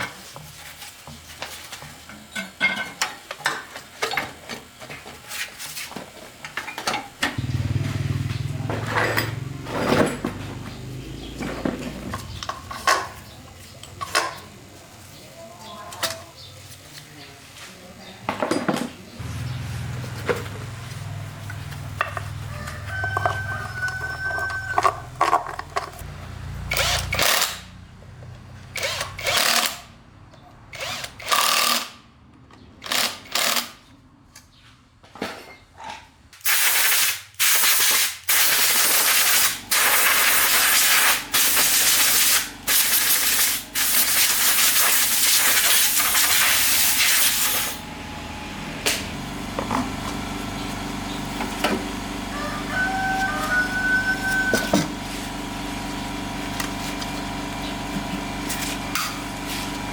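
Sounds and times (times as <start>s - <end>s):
workshop tool hissing: 36.4s - 47.8s.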